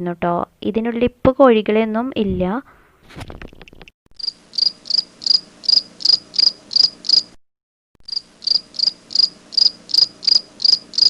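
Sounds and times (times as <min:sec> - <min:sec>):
insect chirping: 0:04.2 - 0:07.4, 0:08.0 - 0:11.0.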